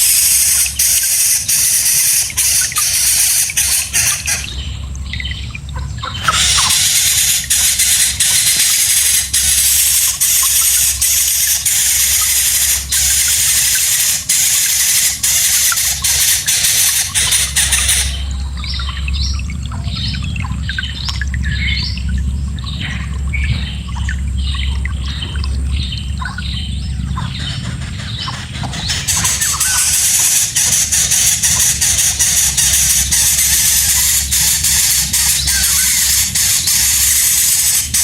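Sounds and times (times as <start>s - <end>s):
loud steady hiss: 0.0s - 4.5s, 6.3s - 18.3s, 28.9s - 38.0s
low hum: 0.0s - 38.0s
bird chicks chirping: 0.6s - 38.0s.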